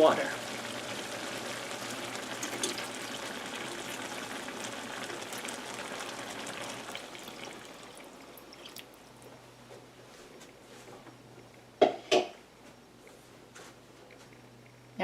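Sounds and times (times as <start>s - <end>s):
water pouring into hot pan: 0.0s - 9.0s
meat sizzling with pops: 0.0s - 9.1s.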